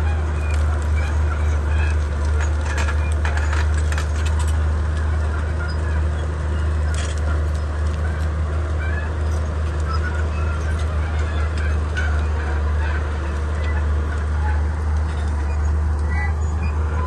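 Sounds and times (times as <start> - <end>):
sharp clatters and cracks: 0.0 - 16.8
bulldozer diesel engine running: 0.0 - 17.0.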